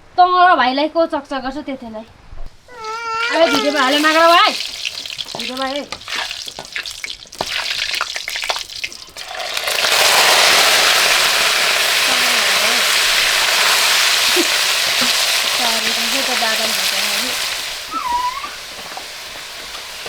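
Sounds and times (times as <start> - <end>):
stirring knocks and scrapes: 2.8 - 10.0
chicken sizzling in hot oil: 2.8 - 20.0.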